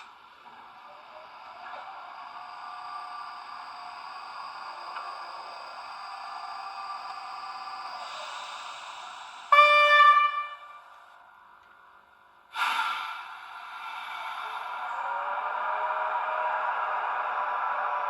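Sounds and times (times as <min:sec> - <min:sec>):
model locomotive running hum: 0:00.0 - 0:18.0
locomotive horn blast: 0:09.5 - 0:10.8.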